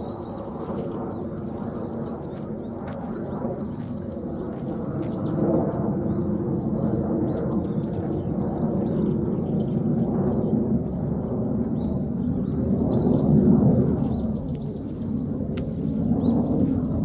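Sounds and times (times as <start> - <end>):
small birds chirping: 0.0 - 5.4, 11.8 - 17.0
steady low rumble: 0.0 - 17.0.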